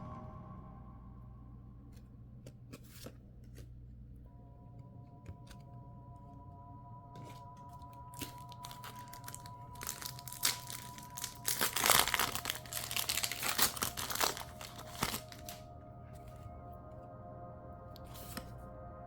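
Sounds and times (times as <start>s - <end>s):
foil wrapper crinkling: 7.7s - 15.6s.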